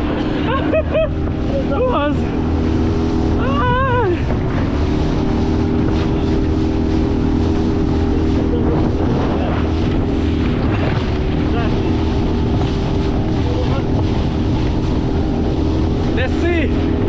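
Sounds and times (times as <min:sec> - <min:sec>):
outboard motor running: 0:00.0 - 0:17.0
wind buffeting microphone: 0:00.0 - 0:17.0
person calling out: 0:03.4 - 0:04.3.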